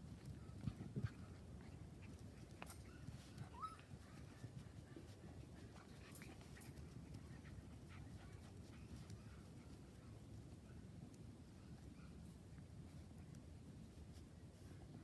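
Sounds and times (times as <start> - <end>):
light clicks and scuffles: 0.0 - 15.0
puppy squeaking: 2.9 - 3.9.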